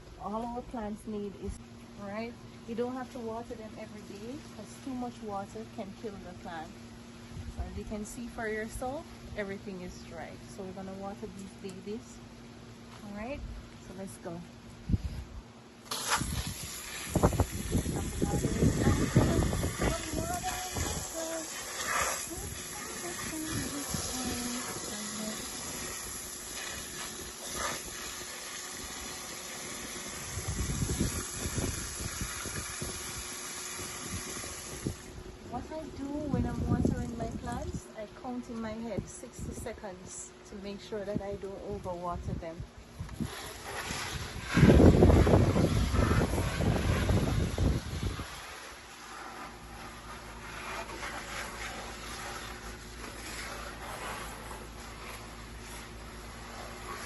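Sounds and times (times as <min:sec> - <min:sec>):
water spraying from hose: 0:15.8 - 0:37.6, 0:43.0 - 0:57.0.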